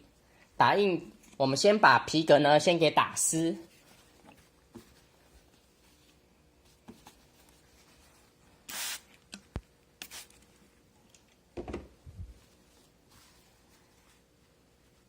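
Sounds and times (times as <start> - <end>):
spray bottle hissing: 8.7 - 9.1, 10.0 - 10.3.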